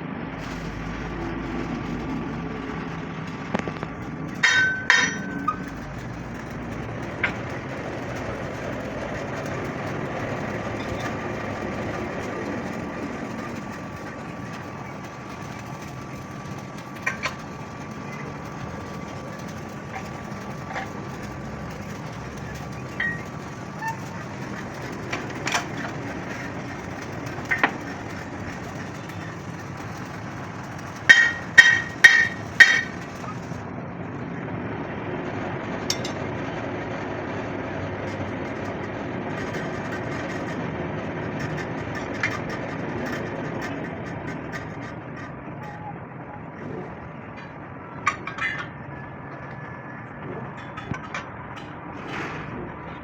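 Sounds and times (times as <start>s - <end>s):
workshop noise: 0.0s - 53.0s
sharp metal knocks: 2.0s - 33.6s, 35.9s - 36.3s
ringing blows on steel: 3.4s - 33.6s.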